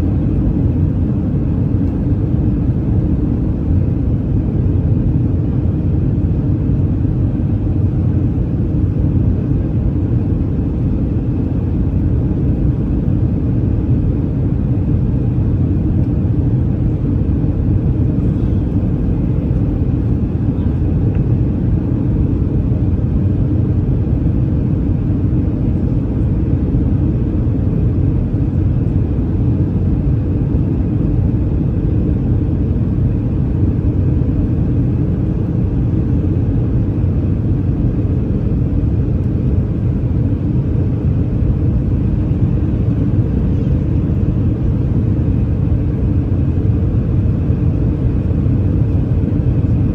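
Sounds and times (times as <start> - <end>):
aircraft cabin engine rumble: 0.0 - 49.9.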